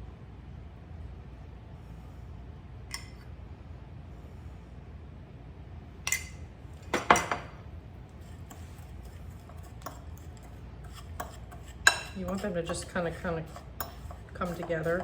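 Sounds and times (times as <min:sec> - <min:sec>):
fork clinking against bowl: 0:08.5 - 0:15.0.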